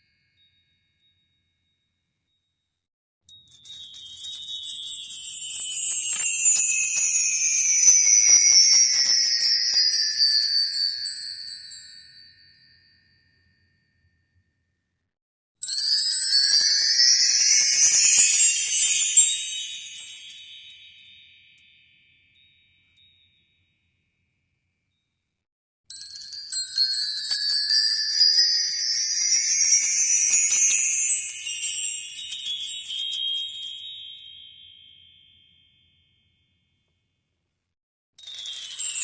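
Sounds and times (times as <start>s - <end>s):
shimmering chime tones sweeping upward: 4.8s - 10.6s, 16.1s - 21.8s, 28.8s - 35.0s, 38.2s - 39.0s.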